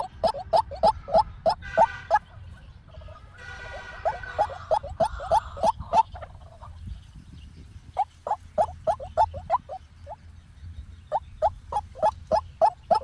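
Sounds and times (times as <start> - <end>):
waterhen calling: 0.0 - 2.3, 3.4 - 6.7, 8.0 - 10.2, 11.1 - 13.0.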